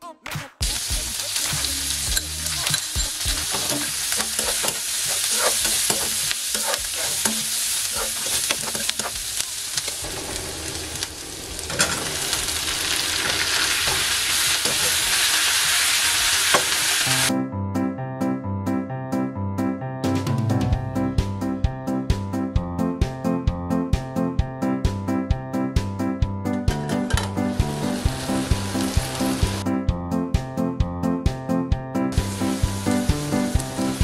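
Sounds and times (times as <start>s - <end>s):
onions sizzling in hot oil: 0.6s - 17.3s, 27.5s - 29.6s, 32.1s - 34.0s
metal spatula scraping pan: 2.2s - 9.2s, 11.7s - 15.3s
piano music: 17.1s - 34.0s.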